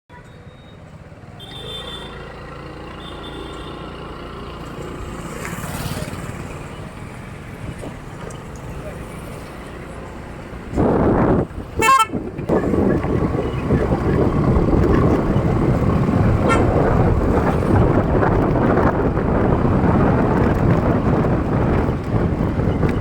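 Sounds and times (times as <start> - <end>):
vehicle road and wind noise: 0.1 - 23.0
car horn toot: 1.4 - 2.3, 3.0 - 3.9, 11.8 - 12.8, 16.4 - 16.8.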